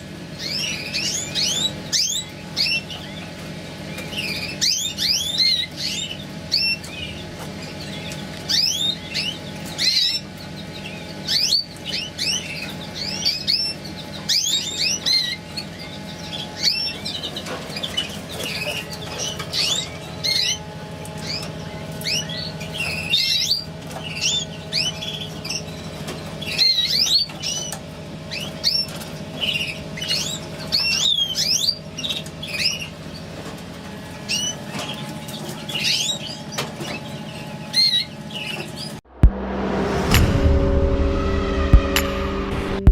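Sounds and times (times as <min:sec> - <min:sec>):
canaries chirping: 0:00.4 - 0:17.2
steady low hum: 0:39.1 - 0:42.9.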